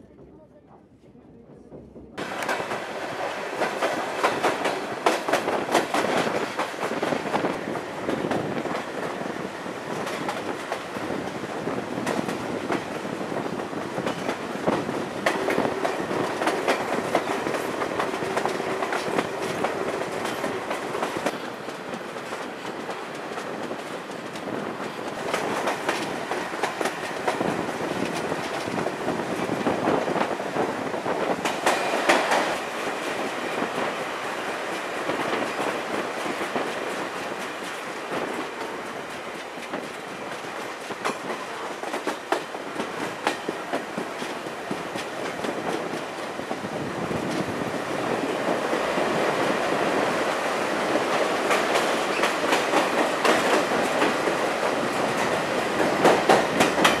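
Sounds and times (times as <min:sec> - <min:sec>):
train rolling noise: 0:00.0 - 0:57.0
wheels clacking over rail joints: 0:34.6 - 0:57.0.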